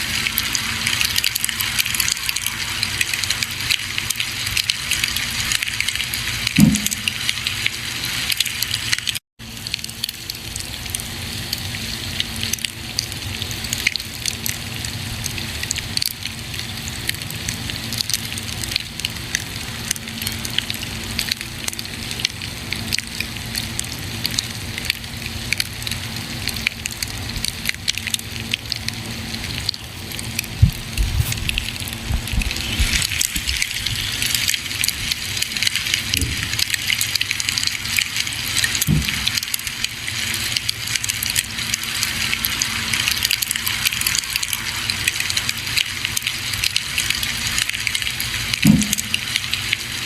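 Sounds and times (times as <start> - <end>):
low thump: 6.6 - 7.1, 38.9 - 39.3.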